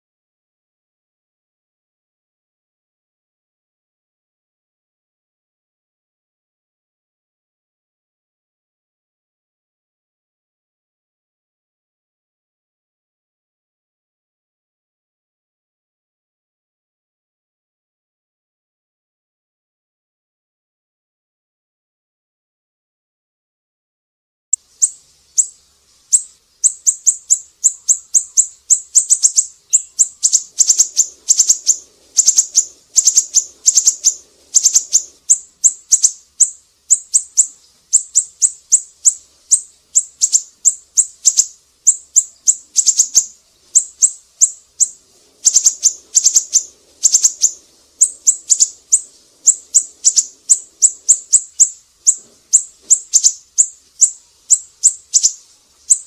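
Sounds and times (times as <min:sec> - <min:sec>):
bird singing sharp chirps: 0:24.8 - 0:56.0.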